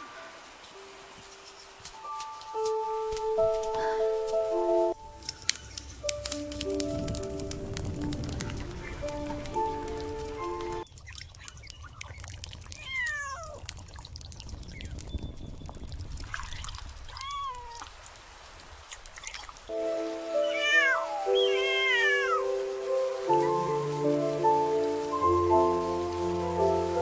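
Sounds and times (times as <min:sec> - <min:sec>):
gentle music: 0:00.0 - 0:10.9, 0:19.7 - 0:27.0
trickling and dripping water: 0:00.1 - 0:27.0
kitten meowing: 0:12.8 - 0:13.6, 0:20.4 - 0:22.4.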